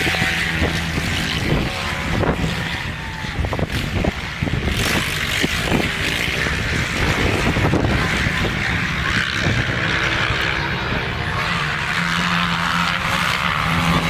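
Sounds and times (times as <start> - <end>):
motocross bike engine running: 0.0 - 14.0
wind buffeting microphone: 0.0 - 14.0.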